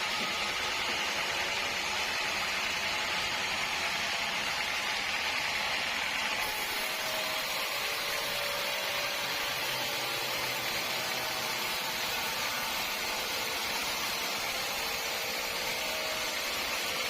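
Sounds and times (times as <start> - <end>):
sawmill machinery whirring: 0.0 - 17.0.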